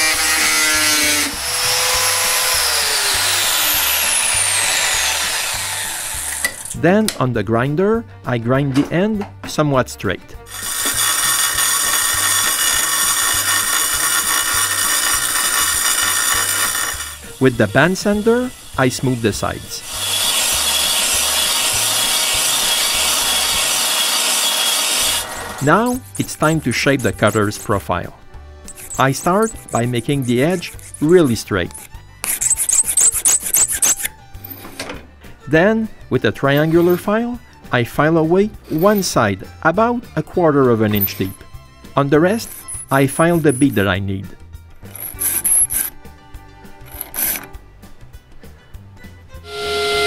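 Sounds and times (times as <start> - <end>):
belt sander grinding steel: 0.0 - 6.8, 10.4 - 34.8, 36.4 - 37.2, 38.6 - 39.8, 40.6 - 44.0, 44.8 - 46.1, 46.8 - 47.6, 49.5 - 50.0
power tool motor whining: 0.0 - 6.8, 10.5 - 27.8, 28.7 - 34.7, 42.4 - 43.9, 44.8 - 45.9, 49.5 - 50.0
country background music: 0.0 - 50.0.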